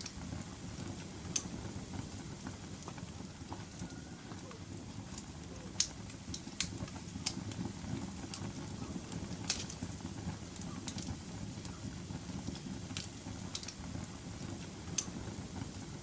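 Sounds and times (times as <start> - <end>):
fire crackling and popping: 0.0 - 16.0
fire rumbling in fireplace: 0.0 - 16.0.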